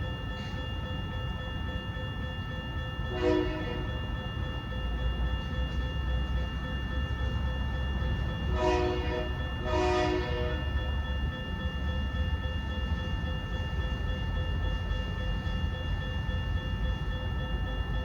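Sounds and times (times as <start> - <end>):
locomotive air horn blasts: 3.1 - 3.9, 8.5 - 10.7.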